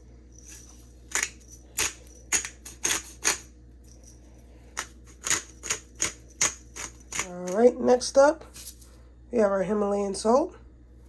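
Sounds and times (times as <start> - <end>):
pepper mill grinding: 0.4 - 7.8.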